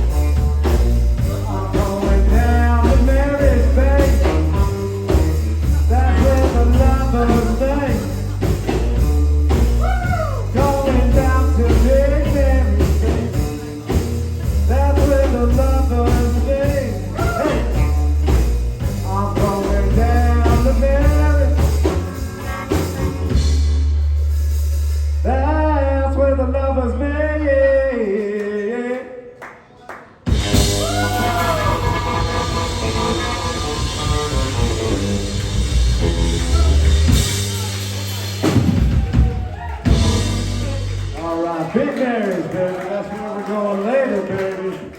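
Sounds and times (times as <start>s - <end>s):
person singing: 0.0s - 9.1s, 9.8s - 18.0s, 19.0s - 23.6s, 30.5s - 35.4s, 36.0s - 41.8s
electric guitar: 0.0s - 25.3s, 30.3s - 41.3s
drum kit: 0.0s - 25.4s, 30.3s - 41.9s
electric bass: 0.0s - 28.1s, 30.3s - 41.9s.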